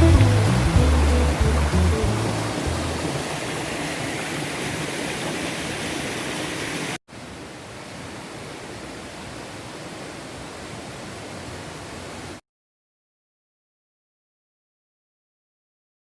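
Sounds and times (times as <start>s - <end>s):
steady rushing outdoor noise: 0.0s - 12.4s.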